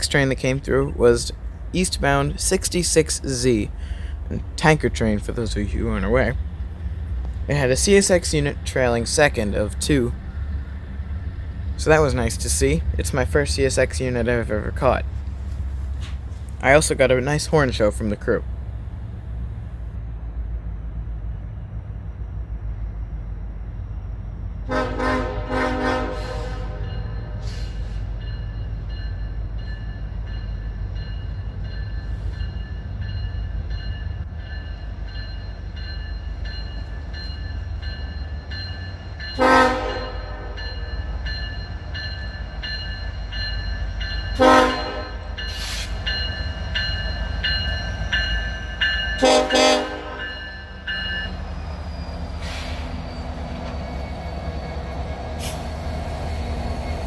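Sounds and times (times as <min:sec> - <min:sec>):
train rumbling past: 0:00.0 - 0:57.0
locomotive horn blasts: 0:24.7 - 0:27.4, 0:39.4 - 0:40.7, 0:44.4 - 0:45.2, 0:49.2 - 0:50.3.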